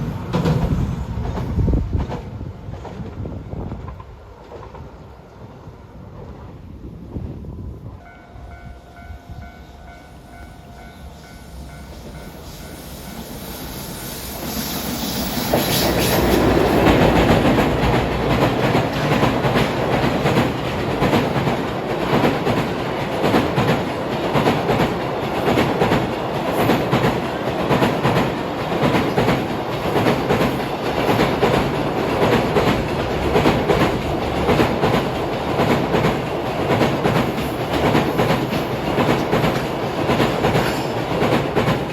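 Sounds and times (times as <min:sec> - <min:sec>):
clickety-clack over rail joints: 0:00.0 - 0:05.1, 0:15.2 - 0:41.9
train wheels rumbling: 0:00.0 - 0:41.9.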